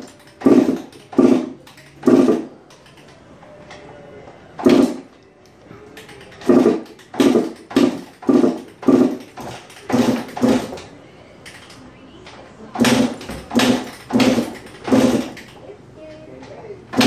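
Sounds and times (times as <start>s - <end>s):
dirt bike engine turning over: 12.8s - 15.6s.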